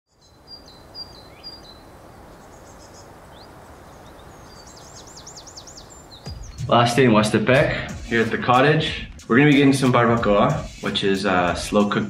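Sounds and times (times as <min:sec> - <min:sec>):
outdoor background noise: 0:00.1 - 0:06.6
birds chirping: 0:00.1 - 0:09.9.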